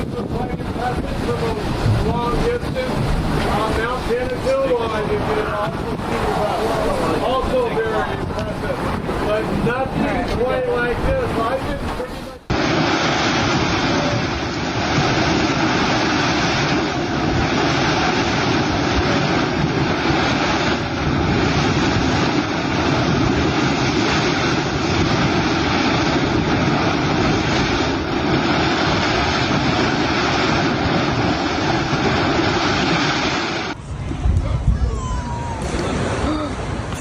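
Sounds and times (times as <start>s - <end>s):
loud rushing noise: 12.4s - 37.0s.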